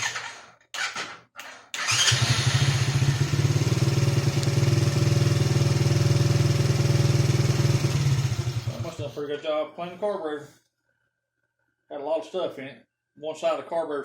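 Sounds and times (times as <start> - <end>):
electric starter cranking: 0.0 - 4.8
small engine idling: 0.0 - 9.2.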